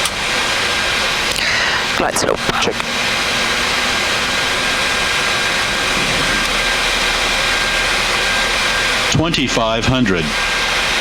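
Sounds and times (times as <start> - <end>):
engine and air-conditioning noise: 0.0 - 11.0
faint high whine: 1.7 - 11.0
rush of airflow: 4.7 - 9.1.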